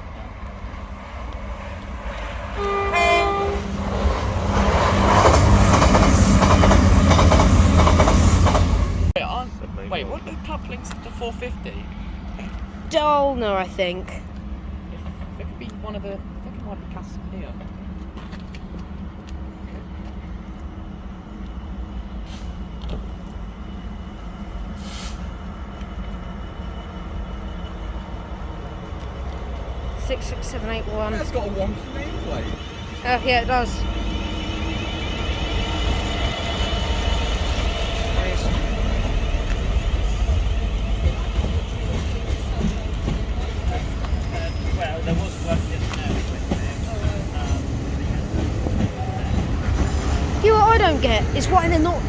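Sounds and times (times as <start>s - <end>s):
train horn blast: 2.5s - 4.6s
train wheels clicking over rail joints: 3.7s - 9.1s, 30.8s - 52.0s.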